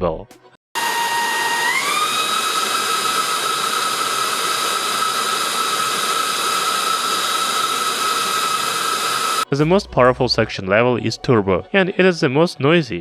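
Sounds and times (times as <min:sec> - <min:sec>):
handheld vacuum cleaner running: 0:00.8 - 0:09.5.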